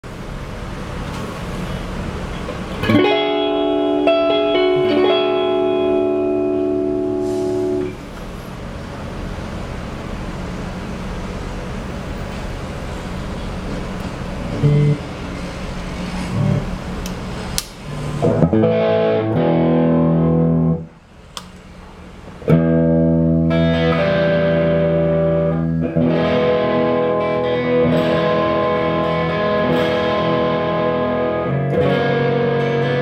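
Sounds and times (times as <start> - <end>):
amp hum and hiss: 0.0 - 33.0
overdriven electric guitar chords: 2.7 - 8.0, 14.5 - 15.1, 18.1 - 21.0, 22.4 - 33.0.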